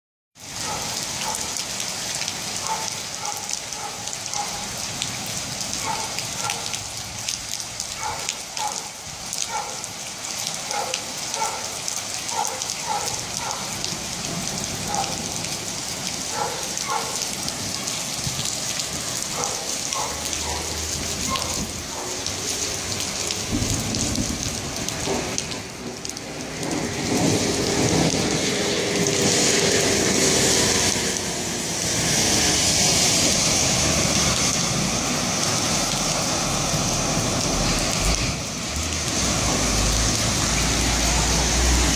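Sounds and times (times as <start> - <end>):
heavy rain pouring: 0.4 - 41.9
low rumble of thunder: 23.3 - 29.9.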